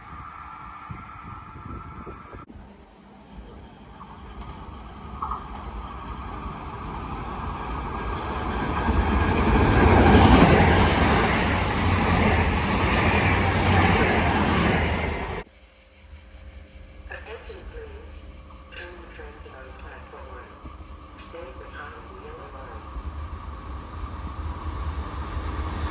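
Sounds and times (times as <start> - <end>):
train rumbling past: 0.0 - 15.4, 17.3 - 25.9.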